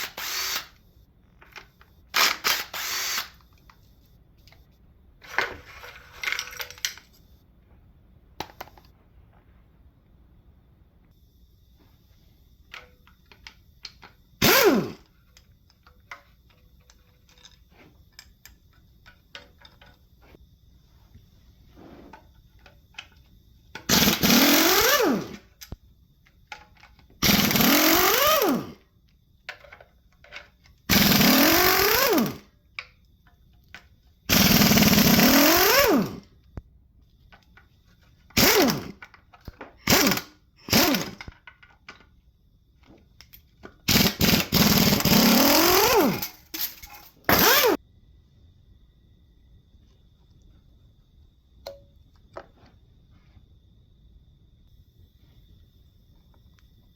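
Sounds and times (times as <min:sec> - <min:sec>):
impact wrench bursts: 0:00.0 - 0:00.8, 0:02.1 - 0:03.4, 0:14.4 - 0:15.1, 0:23.8 - 0:25.6, 0:27.2 - 0:28.8, 0:30.9 - 0:32.5, 0:34.3 - 0:36.3, 0:38.3 - 0:39.0, 0:39.8 - 0:41.3, 0:43.8 - 0:47.8.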